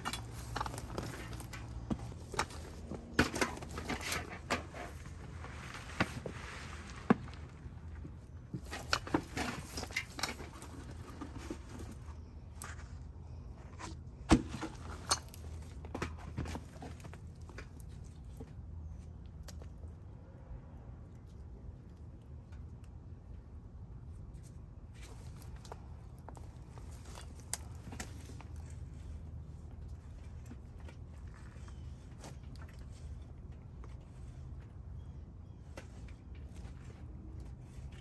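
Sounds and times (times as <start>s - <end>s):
hands working soil: 0.0s - 18.3s
soil being tipped in: 4.5s - 7.8s.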